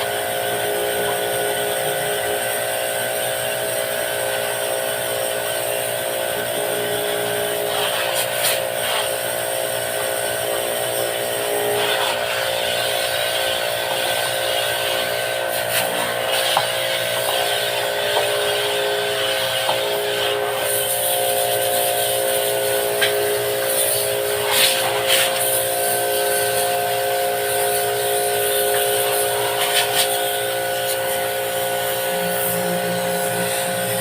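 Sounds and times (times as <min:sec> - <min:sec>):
electric motor whine: 0:00.0 - 0:34.0
high hiss of spraying: 0:13.9 - 0:34.0.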